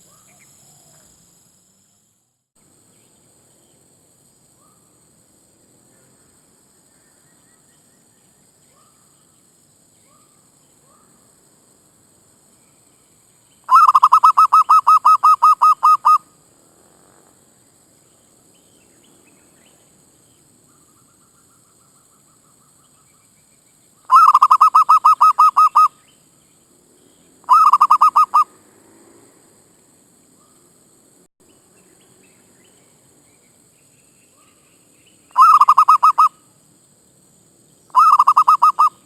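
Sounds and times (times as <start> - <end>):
dove calling: 13.7 - 16.3, 24.1 - 26.0, 27.4 - 28.6, 35.3 - 36.4, 37.9 - 39.0.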